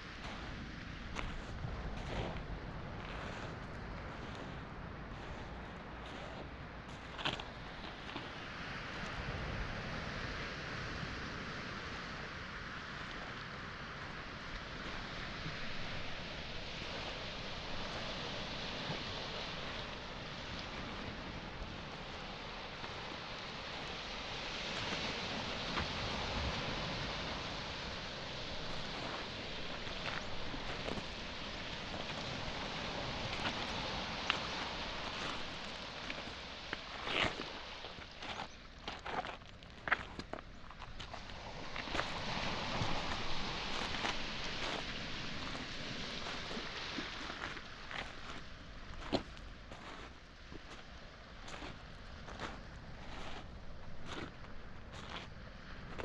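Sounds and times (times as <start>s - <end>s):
waves breaking on pebbles: 0.0s - 56.0s.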